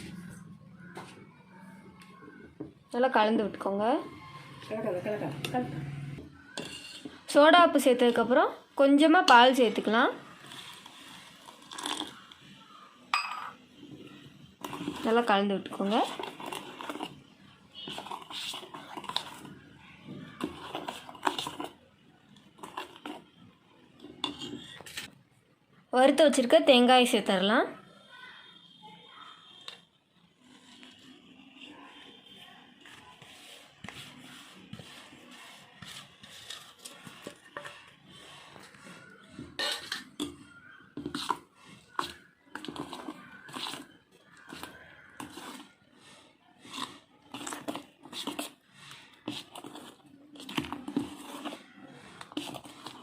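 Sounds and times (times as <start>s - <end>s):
spoon scraping in a vessel: 6.4s - 8.3s, 9.2s - 12.4s, 13.2s - 25.2s, 28.6s - 53.0s.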